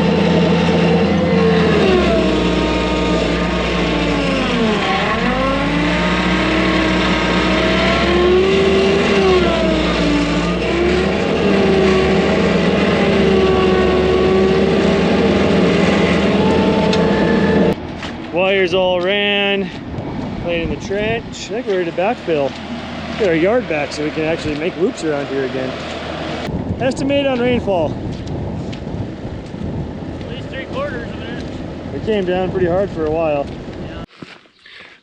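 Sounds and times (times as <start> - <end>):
skid steer engine under load: 0.0 - 18.4, 20.7 - 26.5.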